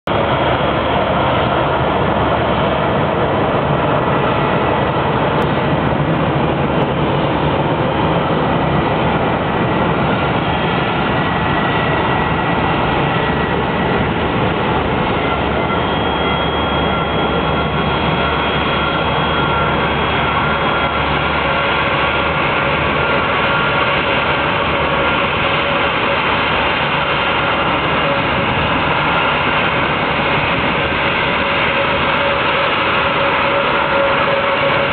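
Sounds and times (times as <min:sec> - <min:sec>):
jet engines roaring: 0:00.1 - 0:34.9
high whining tones: 0:08.9 - 0:34.9.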